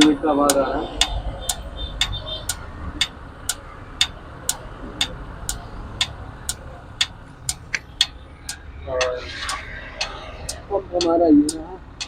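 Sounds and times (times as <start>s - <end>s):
dosing unit clicking: 0.0s - 8.6s.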